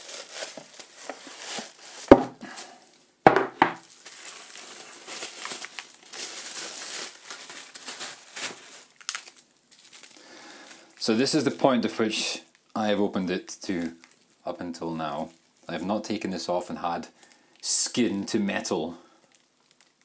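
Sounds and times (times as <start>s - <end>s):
paper wrapping crinkling: 0.0s - 3.0s, 3.8s - 11.9s, 13.8s - 14.4s, 19.3s - 20.0s
sharp knocks: 3.3s - 3.8s.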